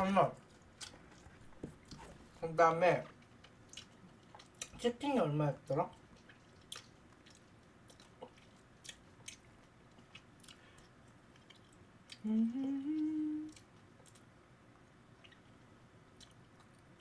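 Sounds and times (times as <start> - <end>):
chewing with mouth clicks and crunches: 3.1 - 4.9, 5.8 - 17.0
person humming: 12.2 - 13.6.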